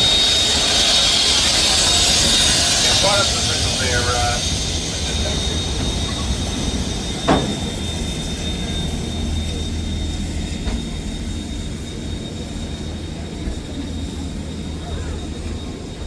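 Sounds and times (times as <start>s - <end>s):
train rumbling on rails: 0.0s - 16.0s
sharp metal clank: 7.2s - 8.3s.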